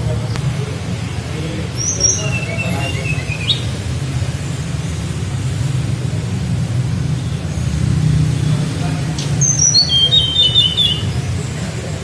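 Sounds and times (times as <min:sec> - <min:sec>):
flycatcher whistled song: 0:01.8 - 0:03.7, 0:09.2 - 0:11.2.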